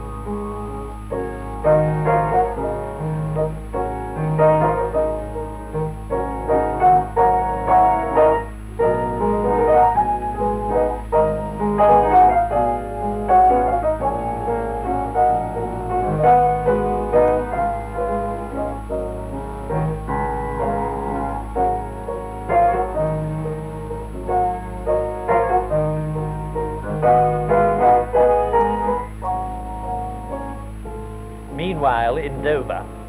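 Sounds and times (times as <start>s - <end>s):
piano repeated chords: 0.0s - 33.0s
soundtrack low hum: 28.4s - 33.0s.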